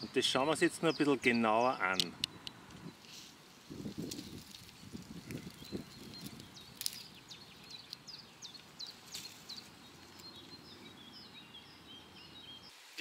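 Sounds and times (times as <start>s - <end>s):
small birds chirping: 0.0s - 13.0s
rustle of leaves: 2.9s - 11.8s, 12.4s - 13.0s.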